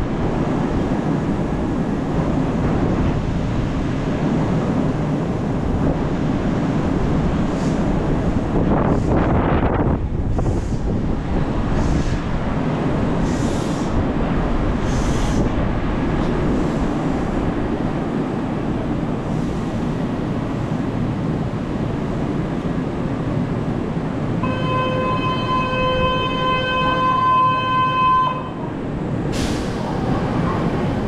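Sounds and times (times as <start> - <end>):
train equipment rumbling: 0.0 - 31.0
short air hisses: 13.2 - 14.0, 14.8 - 15.5, 29.3 - 30.0
steady pitched tone: 24.4 - 28.9.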